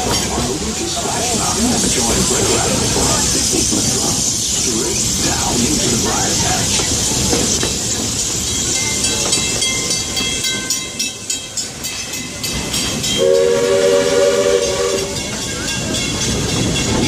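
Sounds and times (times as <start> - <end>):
rail clicking: 0.0 - 17.0
steam train running on rails: 0.0 - 17.0
train whistle blast: 13.2 - 15.2.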